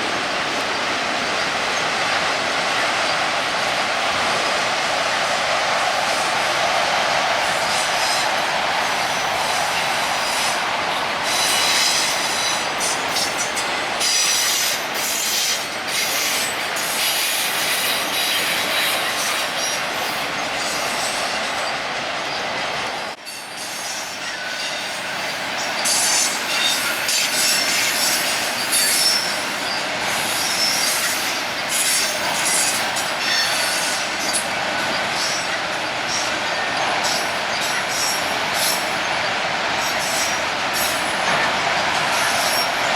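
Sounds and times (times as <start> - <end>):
freight train wheels on rails: 0.0 - 42.9
high-pitched wheel squeals: 23.3 - 42.9.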